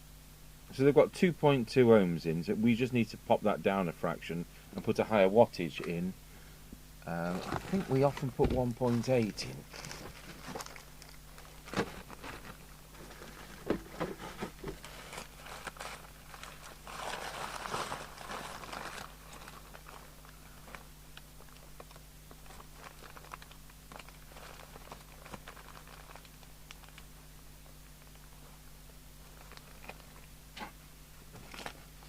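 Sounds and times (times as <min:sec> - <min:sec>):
steady low hum: 0:00.0 - 0:32.0
bag rustling: 0:07.3 - 0:20.1.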